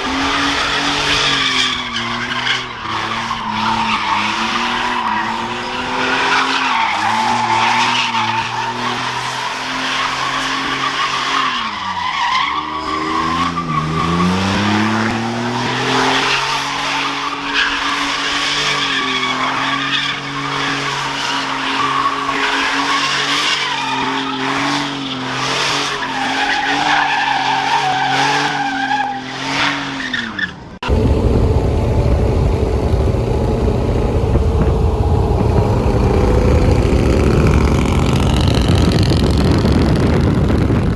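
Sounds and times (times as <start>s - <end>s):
truck engine revving high: 30.8s - 40.9s
wavering high squeal: 30.9s - 39.1s.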